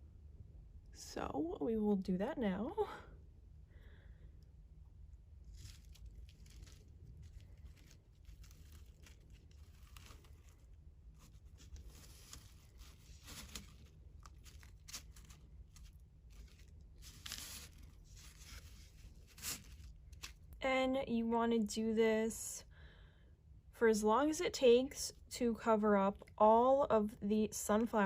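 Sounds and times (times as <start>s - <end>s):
bird seed crunching and rustling: 5.4s - 20.6s.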